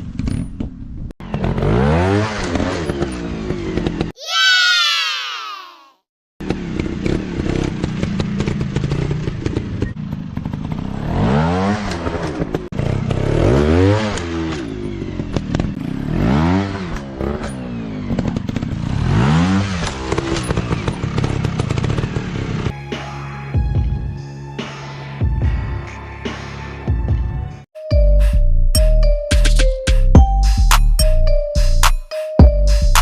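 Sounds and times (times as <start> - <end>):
dirt bike engines revving: 6.4 - 22.7.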